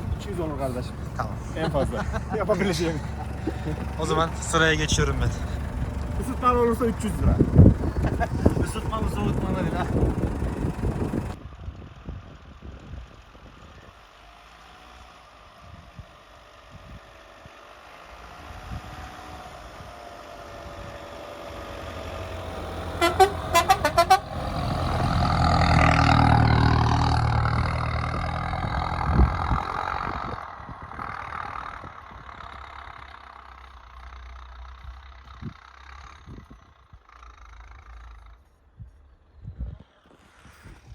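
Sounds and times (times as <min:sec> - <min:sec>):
vehicle driving past: 0:00.0 - 0:11.4, 0:14.2 - 0:40.9
horn short toots: 0:23.0 - 0:24.4.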